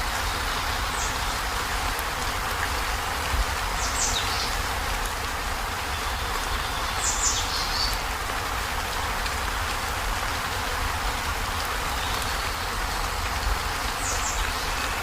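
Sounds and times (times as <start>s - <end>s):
heavy rain on a metal roof: 0.0s - 15.0s.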